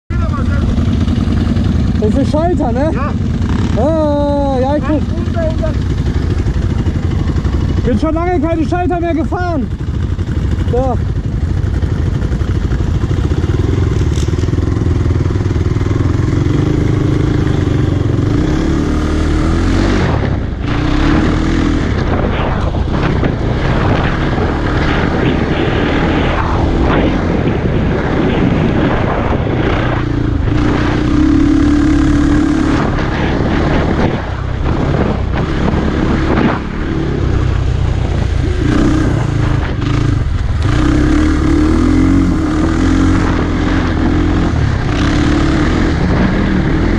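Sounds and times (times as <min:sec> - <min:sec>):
dirt noise: 0:00.1 - 0:46.9
wind noise: 0:00.1 - 0:46.9
quad engine revving under load: 0:12.0 - 0:46.9.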